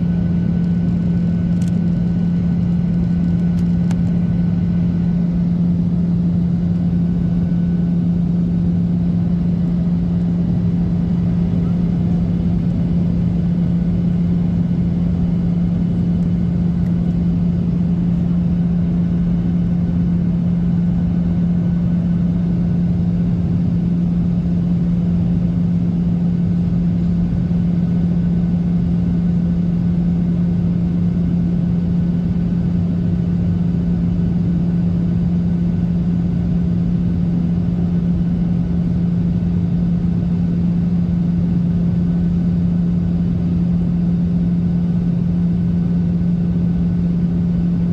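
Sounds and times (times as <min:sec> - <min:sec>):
jet engines droning: 0:00.0 - 0:27.6
airplane cabin airflow rush: 0:00.0 - 0:29.1
constant low hum: 0:00.0 - 0:47.9.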